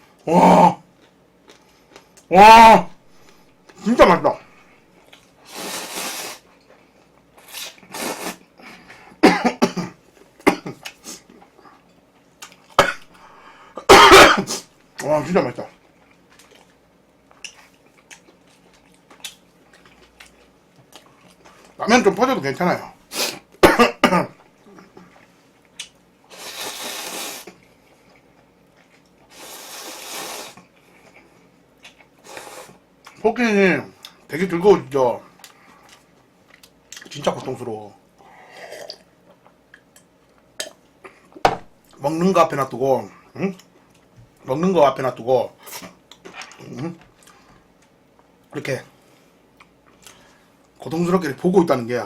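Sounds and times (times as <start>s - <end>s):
close-miked eating: 0.1s - 2.3s, 4.6s - 9.1s, 10.1s - 12.8s, 14.9s - 21.8s, 24.4s - 33.2s, 35.2s - 42.0s, 45.5s - 50.8s
breathy hissing from mouth: 5.4s - 6.4s, 7.4s - 9.2s, 26.3s - 27.6s, 29.3s - 30.6s, 32.2s - 32.8s
person coughing: 9.2s - 10.9s, 12.8s - 13.1s, 13.8s - 14.6s, 23.6s - 24.4s
breaths: 13.1s - 13.9s, 38.2s - 38.7s, 50.0s - 50.6s.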